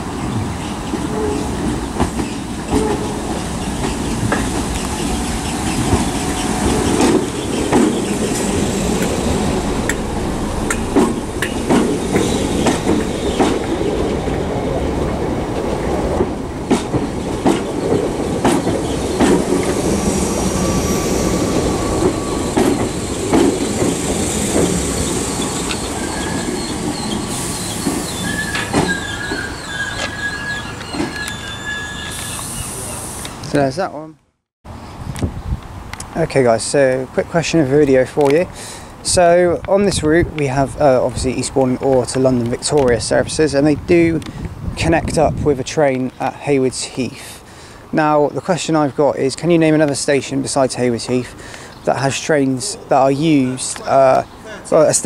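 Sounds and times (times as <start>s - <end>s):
train rumbling into platform: 0.0s - 33.9s, 34.7s - 55.0s
wheels clicking over rail joints: 0.2s - 19.9s, 21.6s - 32.4s, 35.9s - 47.3s
high wheel squeal: 18.8s - 33.4s.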